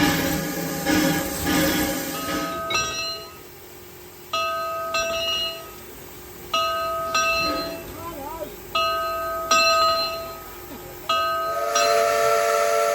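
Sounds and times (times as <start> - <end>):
train hiss: 0.0 - 12.9
bell-like chime ringing: 2.2 - 3.4.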